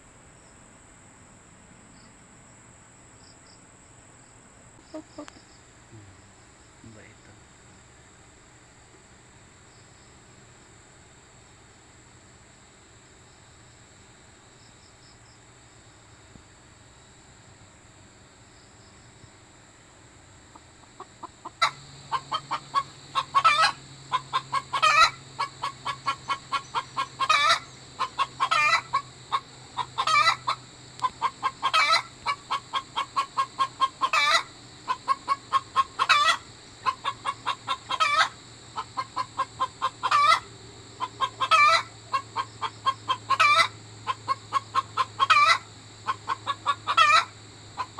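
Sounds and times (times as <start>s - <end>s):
faint insect hum: 0.0s - 47.9s
hen cackling: 4.8s - 5.6s, 20.5s - 47.9s.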